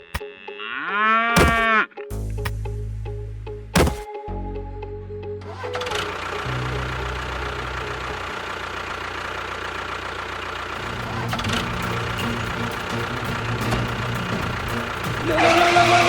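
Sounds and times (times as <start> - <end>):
small engine running: 5.5 - 16.0.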